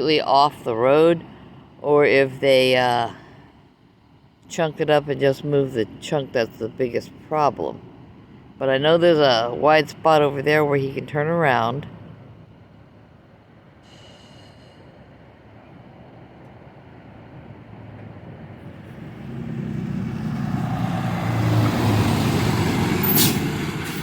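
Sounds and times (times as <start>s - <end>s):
vehicle passing close by: 17.8s - 24.0s.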